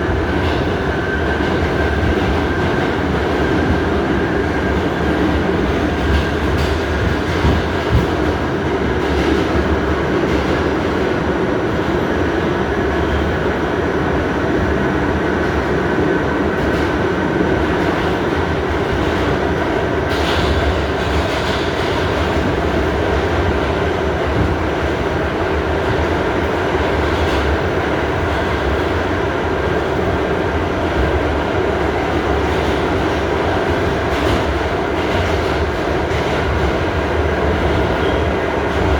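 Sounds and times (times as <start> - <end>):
subway car rumble: 0.0 - 38.9.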